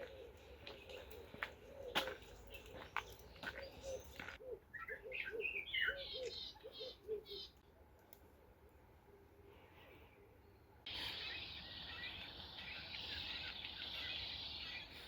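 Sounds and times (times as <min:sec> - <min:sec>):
wild birds calling: 0:00.0 - 0:07.6, 0:10.9 - 0:15.0.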